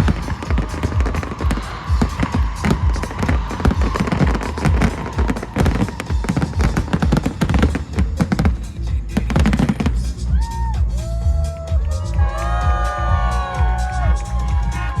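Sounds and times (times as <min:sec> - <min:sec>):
fireworks booming and cracking: 0:00.0 - 0:10.1.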